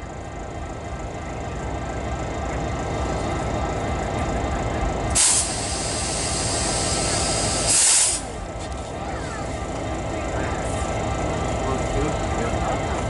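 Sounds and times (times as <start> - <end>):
locomotive engine rumble: 0.0 - 13.0
compressed air hissing: 5.2 - 8.4.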